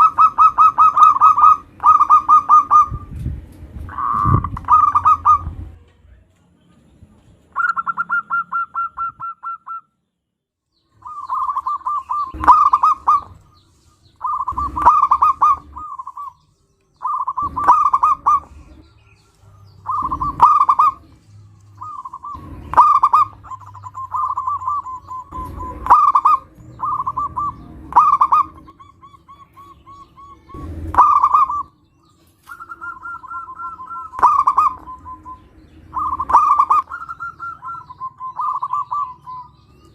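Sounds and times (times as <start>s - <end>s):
dove cooing: 0.0s - 3.2s, 3.9s - 5.8s, 7.5s - 9.9s, 11.0s - 16.4s, 17.0s - 39.9s.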